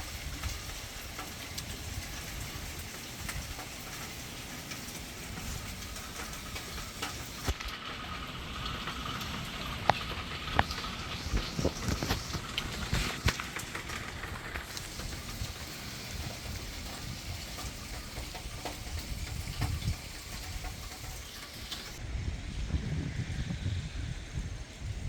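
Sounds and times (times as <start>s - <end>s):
heavy rain falling: 0.0s - 22.0s
low rumble: 14.3s - 25.0s.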